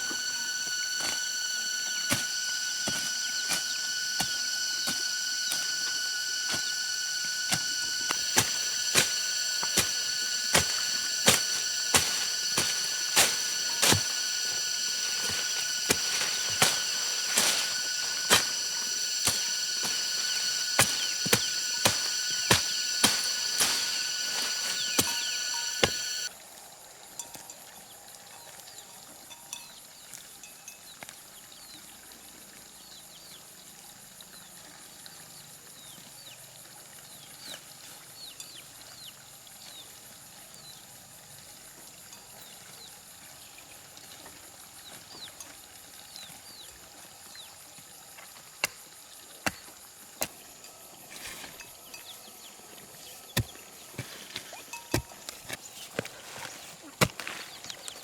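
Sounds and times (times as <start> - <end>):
high falling chirps: 0.0 - 26.3
loud steady tone: 0.0 - 26.3.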